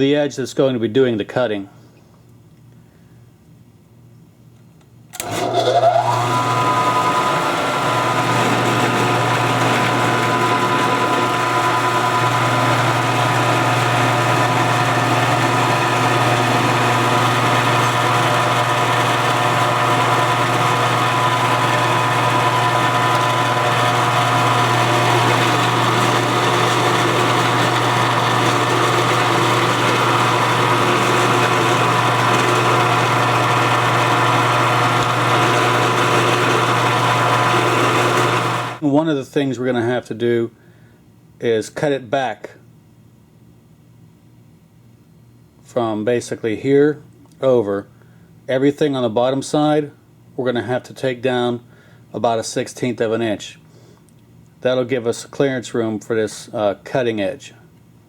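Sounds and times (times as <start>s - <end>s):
milling machine motor whine: 5.2s - 38.8s.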